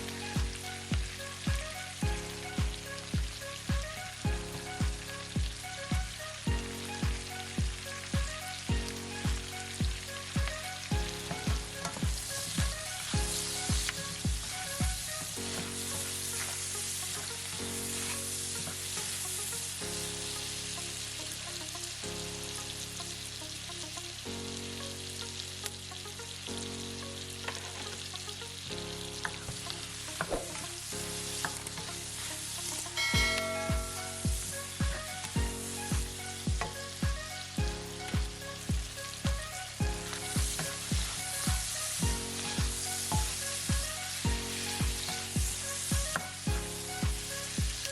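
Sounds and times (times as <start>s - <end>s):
food sizzling in a pan: 0.0s - 47.9s
music with kick-drum beat: 0.4s - 15.7s, 33.0s - 47.9s.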